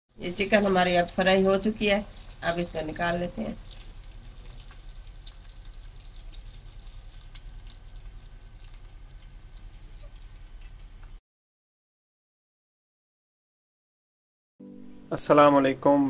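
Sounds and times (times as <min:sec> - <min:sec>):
chicken sizzling in hot oil: 0:00.2 - 0:11.2.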